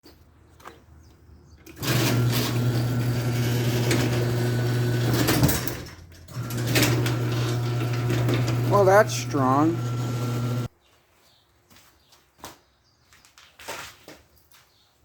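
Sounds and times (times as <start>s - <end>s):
humidifier electric buzz: 6.4s - 10.7s.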